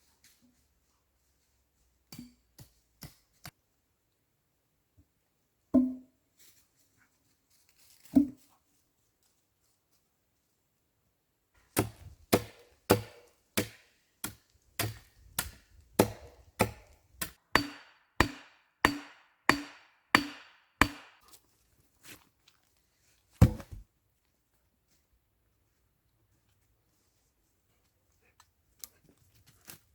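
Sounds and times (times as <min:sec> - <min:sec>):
chopping strikes into wood: 0:11.8 - 0:21.2, 0:23.4 - 0:23.8.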